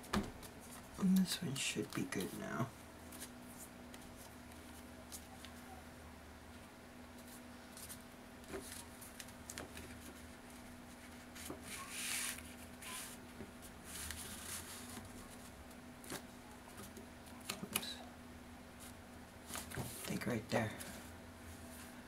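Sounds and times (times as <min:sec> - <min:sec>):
faint steady hum: 0:00.0 - 0:22.0
paper rustling: 0:03.0 - 0:05.6, 0:07.2 - 0:17.8.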